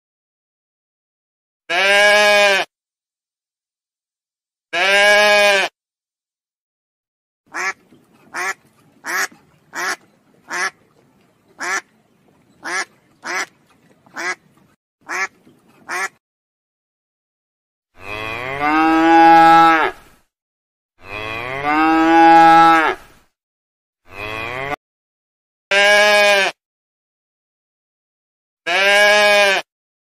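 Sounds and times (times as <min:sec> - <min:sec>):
cow mooing: 0:01.7 - 0:02.7, 0:04.8 - 0:05.7, 0:18.0 - 0:20.0, 0:21.0 - 0:23.1, 0:24.1 - 0:24.8, 0:25.7 - 0:26.6, 0:28.7 - 0:29.6
duck quacking: 0:07.5 - 0:11.9, 0:12.6 - 0:16.2.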